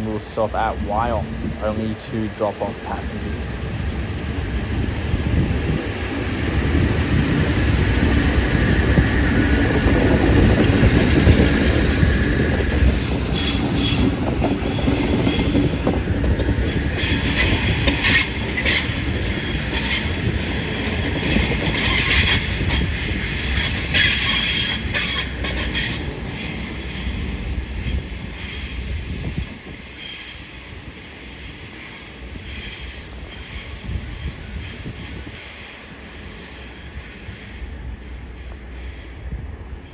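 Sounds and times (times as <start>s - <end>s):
train low rumble: 0.0s - 39.9s
train wheels squealing on rails: 7.8s - 39.9s.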